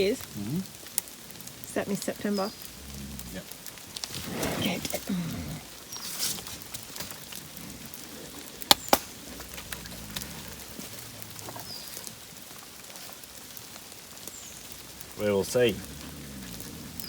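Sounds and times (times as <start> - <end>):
rain patter: 0.0 - 17.0.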